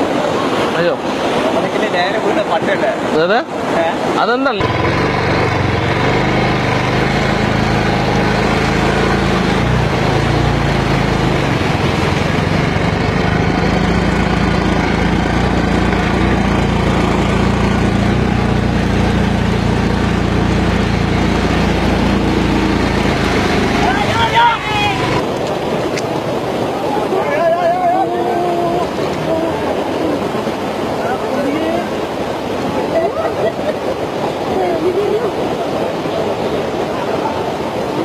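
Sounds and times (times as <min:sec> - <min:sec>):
loud rushing noise: 0:03.5 - 0:38.0
vehicle engine running: 0:04.6 - 0:25.4.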